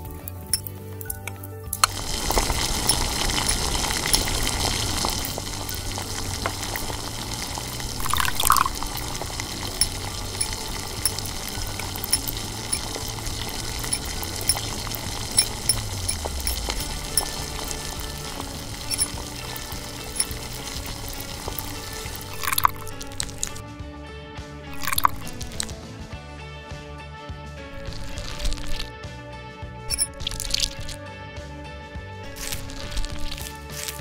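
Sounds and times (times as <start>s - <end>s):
liquid pouring: 1.8s - 23.6s, 24.7s - 25.7s, 27.8s - 28.9s, 29.9s - 31.0s, 32.3s - 34.0s.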